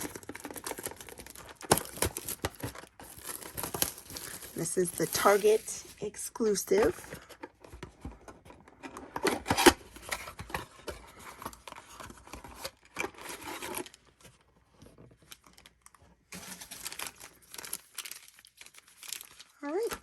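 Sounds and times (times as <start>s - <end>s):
wrappers tearing and crinkling: 0.0s - 6.2s, 15.2s - 20.0s.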